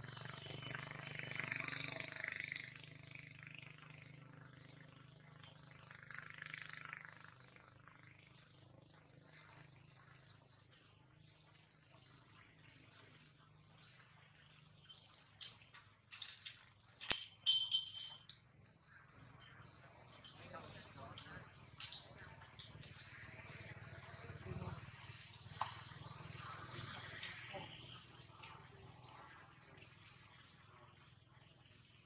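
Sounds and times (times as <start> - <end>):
bird chirping: 2.4 - 32.0.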